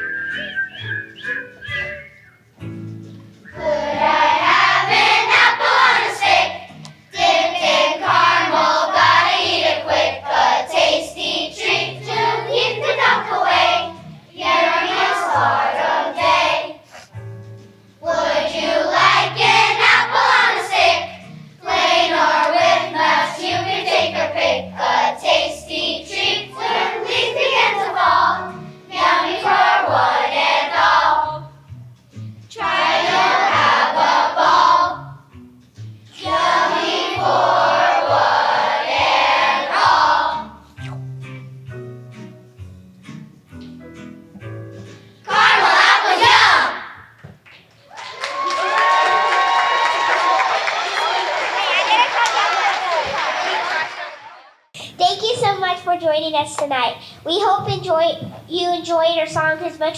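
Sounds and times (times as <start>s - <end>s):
instrumental accompaniment: 0.0s - 9.7s
children's choir singing: 3.5s - 17.1s, 18.0s - 31.6s, 32.5s - 35.2s, 36.1s - 40.7s, 45.2s - 47.0s, 48.8s - 54.7s.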